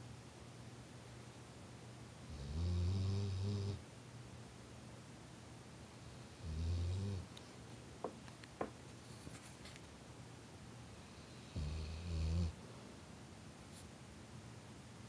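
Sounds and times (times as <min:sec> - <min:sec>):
dog snoring: 0:02.3 - 0:03.8, 0:06.1 - 0:07.3, 0:11.0 - 0:12.6.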